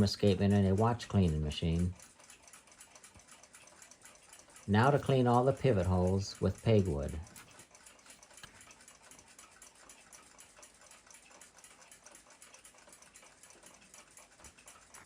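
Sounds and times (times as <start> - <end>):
clock ticking: 0.0 - 15.0.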